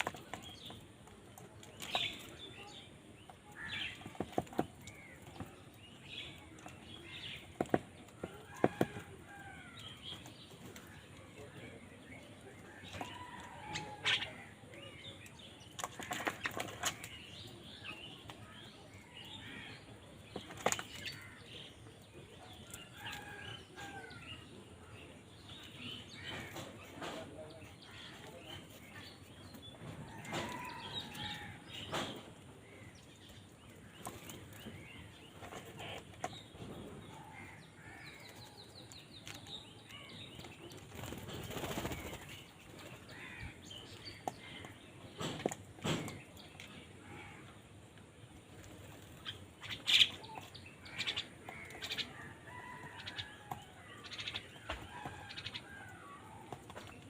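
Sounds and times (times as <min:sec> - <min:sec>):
wings flapping: 0:40.9 - 0:42.3.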